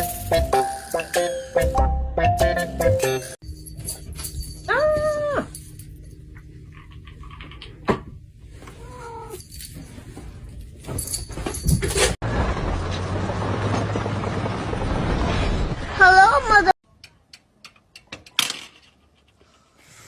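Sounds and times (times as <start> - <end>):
animal crying: 8.8 - 9.4
scattered clicks and knocks: 17.0 - 19.5.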